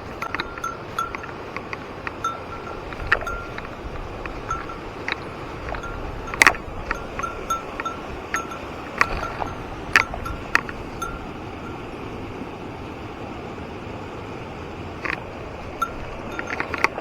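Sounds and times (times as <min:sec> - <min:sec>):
small metal bell jingling: 0:00.0 - 0:11.8, 0:15.6 - 0:17.0.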